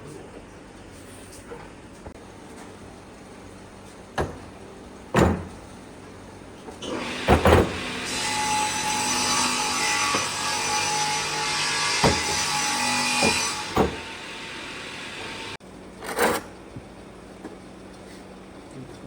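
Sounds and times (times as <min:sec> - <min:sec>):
power tool working wood: 0:06.8 - 0:15.6.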